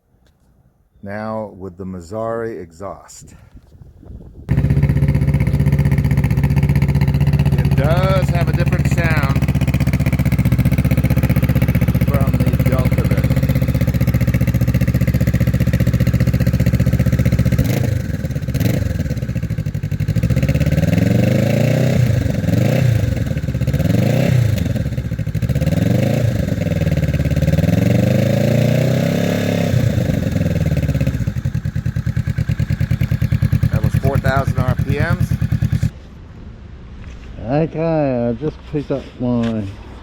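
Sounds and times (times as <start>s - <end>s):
motorcycle engine idling and revving: 4.3s - 36.0s.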